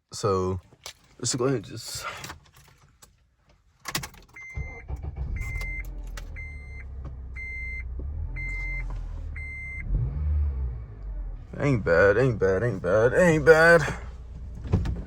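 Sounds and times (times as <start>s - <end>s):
dashboard warning chime beeping: 4.3s - 9.9s
car engine idling: 4.6s - 15.0s.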